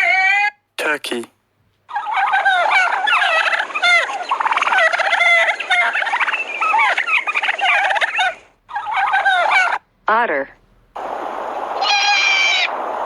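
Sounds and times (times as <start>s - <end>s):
turkey gobbling: 1.9s - 9.8s.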